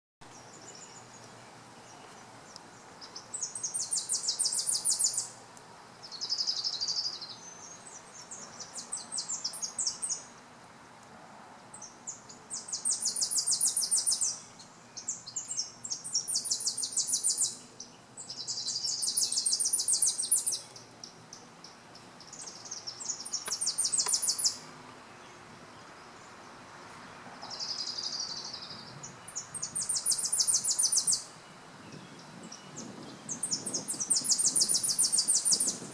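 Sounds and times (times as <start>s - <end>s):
songbird singing staccato chips: 0.2s - 10.4s, 11.8s - 31.4s, 32.0s - 35.9s.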